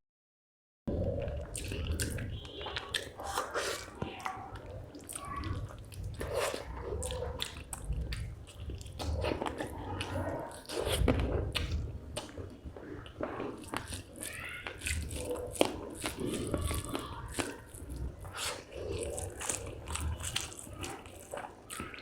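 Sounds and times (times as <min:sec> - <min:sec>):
person chewing and smacking: 0:01.0 - 0:22.0.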